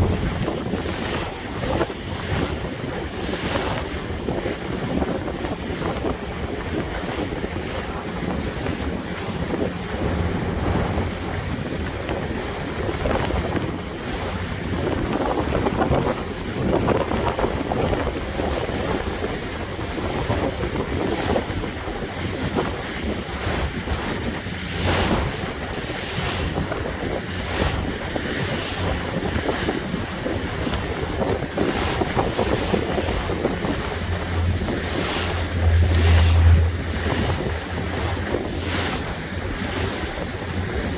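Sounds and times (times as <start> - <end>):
water splashing along hull: 0.0 - 40.9
wind on microphone: 0.0 - 40.9
steady low hum: 6.2 - 14.4, 31.0 - 40.9.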